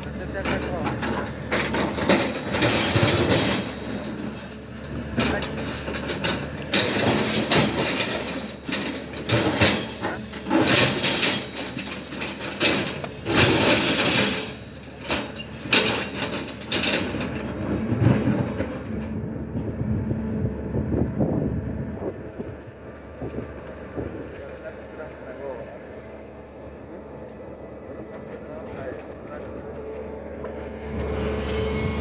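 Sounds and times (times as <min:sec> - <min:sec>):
rough clanking noise: 0:00.0 - 0:19.8
excavator engine hum: 0:00.0 - 0:32.0.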